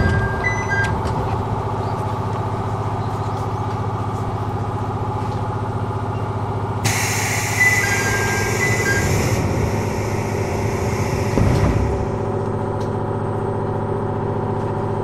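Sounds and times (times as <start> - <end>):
train mechanical hum pulsing: 0.0 - 15.0
sudden hiss: 6.8 - 12.1.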